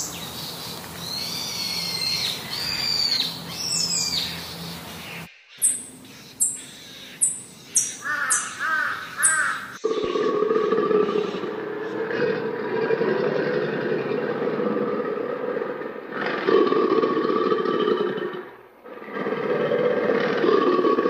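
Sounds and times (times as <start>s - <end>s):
birds warbling calls: 0.0s - 16.6s.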